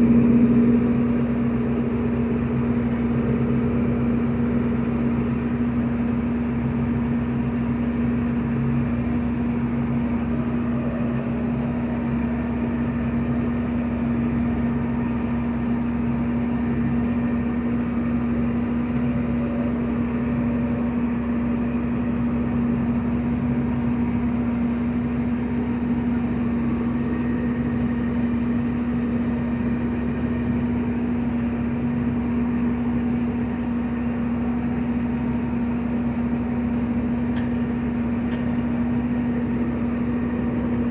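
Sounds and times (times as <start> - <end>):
farm machinery engine drone: 0.0 - 40.9.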